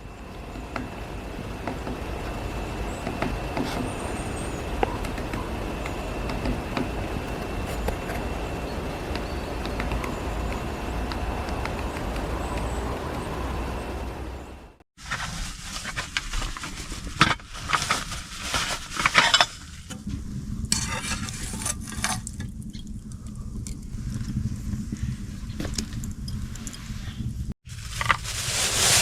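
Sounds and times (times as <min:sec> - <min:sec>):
utensil clattering and scraping in pan: 0:15.8 - 0:20.0, 0:20.7 - 0:22.4.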